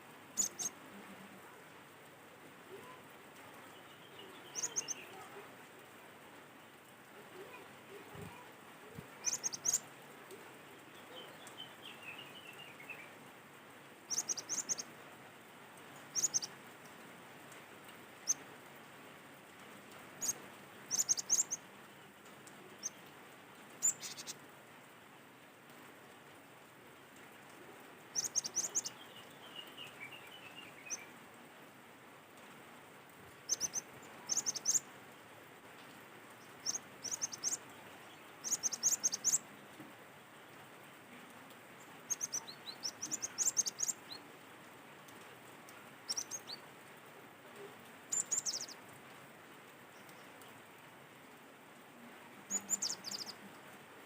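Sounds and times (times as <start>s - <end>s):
bird chirping in quick bursts: 0.4s - 0.7s, 4.4s - 5.0s, 9.2s - 9.8s, 14.1s - 14.8s, 16.1s - 16.5s, 23.8s - 24.3s, 42.1s - 44.2s, 48.1s - 48.8s, 52.5s - 53.3s.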